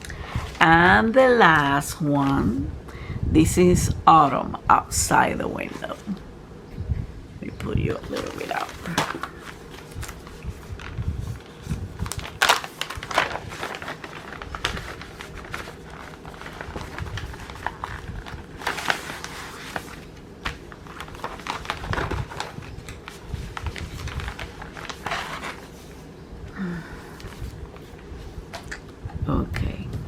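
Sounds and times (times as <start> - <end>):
packaging crinkling and rustling: 8.0 - 26.1.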